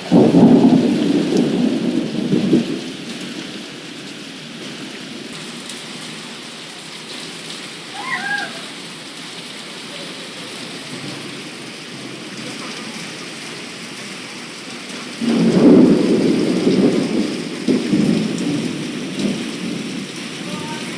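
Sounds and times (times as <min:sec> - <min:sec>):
thunder rumbling: 0:00.0 - 0:05.4, 0:15.1 - 0:20.9
heavy rain falling: 0:00.0 - 0:20.9.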